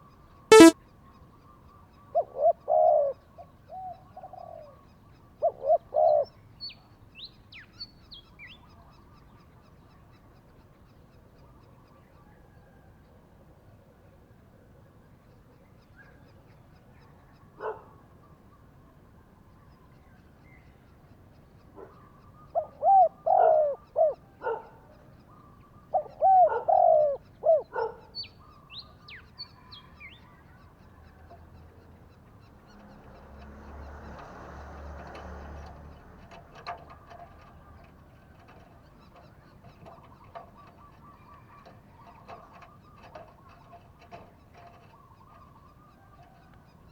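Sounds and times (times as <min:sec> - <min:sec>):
small bird chirping: 0:00.5 - 0:00.8
dove cooing: 0:26.0 - 0:27.7.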